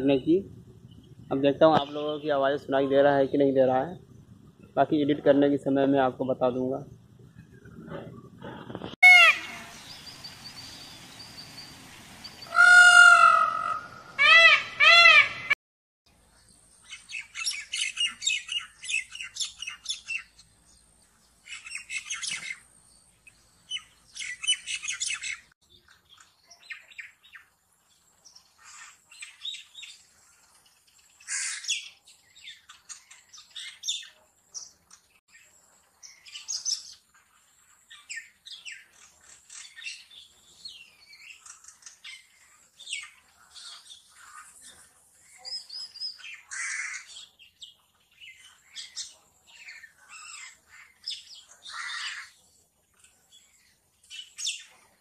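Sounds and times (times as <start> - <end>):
peacock calls: 8.4 - 15.6.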